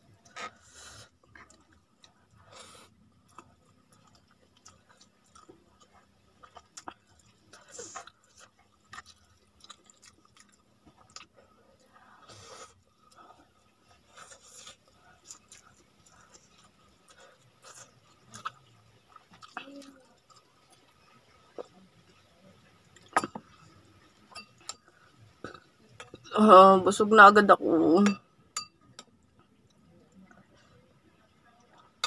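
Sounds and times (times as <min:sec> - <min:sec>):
person chewing with mouth clicks: 0:03.2 - 0:11.4, 0:14.0 - 0:20.8.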